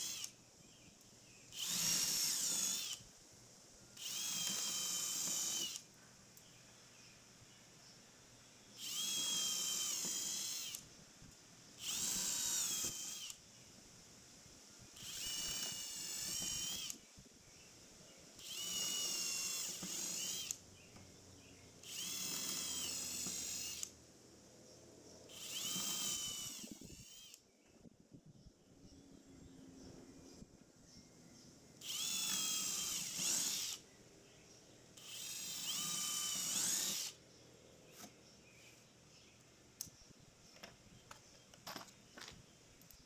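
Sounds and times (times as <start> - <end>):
power drill motor whine: 0.0 - 0.4, 1.5 - 3.1, 4.0 - 5.9, 8.8 - 10.9, 11.8 - 13.4, 15.0 - 17.0, 18.4 - 20.6, 21.8 - 23.9, 25.3 - 27.4, 31.8 - 33.8, 35.0 - 37.2.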